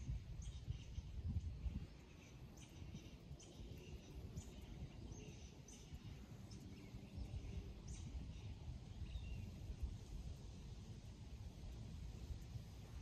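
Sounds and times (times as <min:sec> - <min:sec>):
wild birds chirping: 0:00.0 - 0:09.8
wind rumble on microphone: 0:00.0 - 0:13.0.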